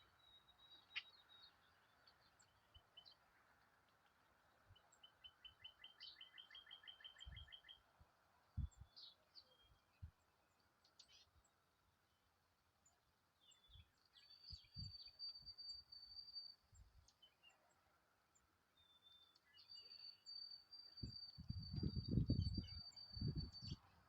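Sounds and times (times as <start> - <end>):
songbird trilling: 0.0 - 3.2, 4.8 - 7.8, 18.8 - 23.9
faint bird chirps: 0.0 - 7.9, 8.5 - 24.0.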